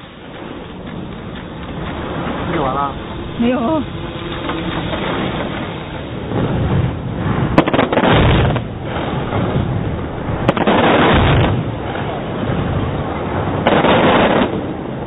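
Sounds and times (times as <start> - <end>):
fireworks booming: 0.0 - 15.0
fireworks sharp cracks: 3.8 - 9.7, 10.4 - 12.6, 13.6 - 14.8.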